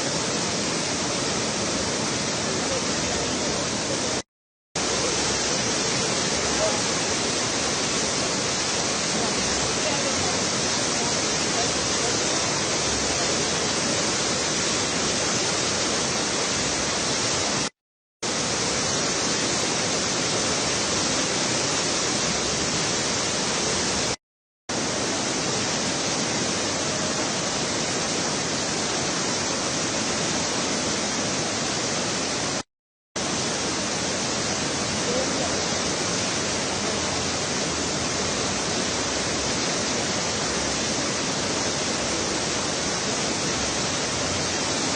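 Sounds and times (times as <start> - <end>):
river rushing: 0.0 - 4.2, 4.8 - 32.6, 33.2 - 44.9.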